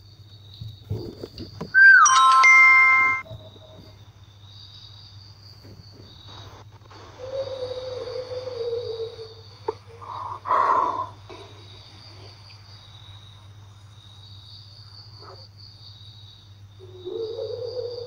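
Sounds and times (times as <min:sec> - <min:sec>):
crickets trilling: 0:00.0 - 0:18.0
wavering mid-pitched tone: 0:01.8 - 0:03.2.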